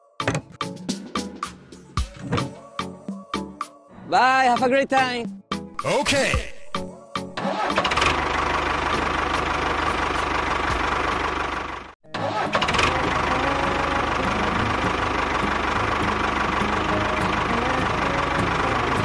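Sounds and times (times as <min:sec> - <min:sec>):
small engine running: 0:07.4 - 0:19.0.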